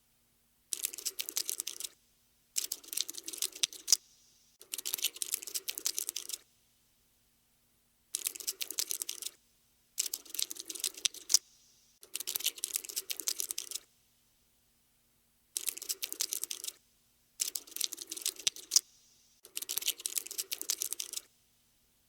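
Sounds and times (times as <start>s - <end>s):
cockroach scuttling clicks: 0.7s - 2.0s, 2.6s - 6.4s, 8.1s - 9.4s, 10.0s - 13.8s, 15.6s - 16.8s, 17.4s - 21.3s.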